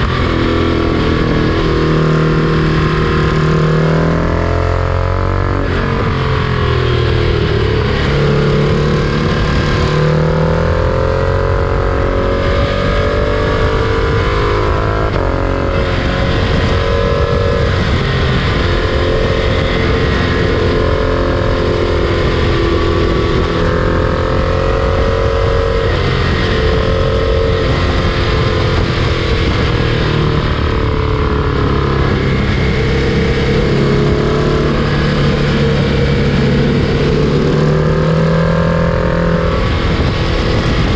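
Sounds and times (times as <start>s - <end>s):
freight train rumbling: 27.8s - 40.9s.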